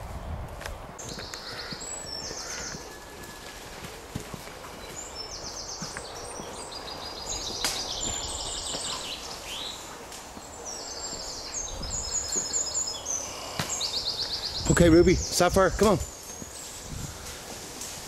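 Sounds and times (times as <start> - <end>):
songbirds singing: 0.0 - 18.0
rustling through grass: 16.1 - 18.0.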